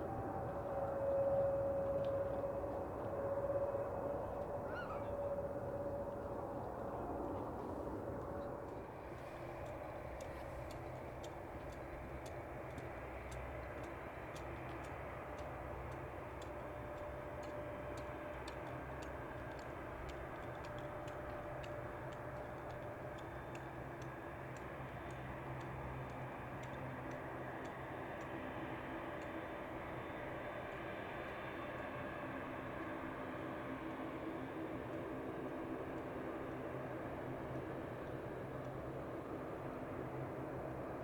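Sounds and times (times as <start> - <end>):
distant jet engines hum: 0.0 - 41.0
light sharp ticking: 8.1 - 31.8.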